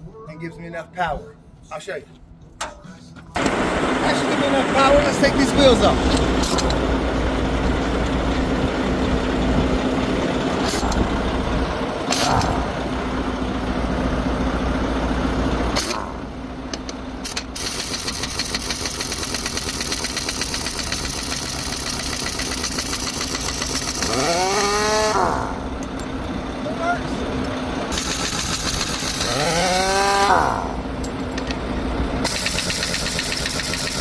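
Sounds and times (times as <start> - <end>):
truck engines idling: 0.0 - 34.0
pneumatic impact wrench hammering: 6.0 - 6.9, 10.6 - 11.3, 12.0 - 12.8, 15.8 - 26.1, 27.9 - 31.6, 32.2 - 34.0.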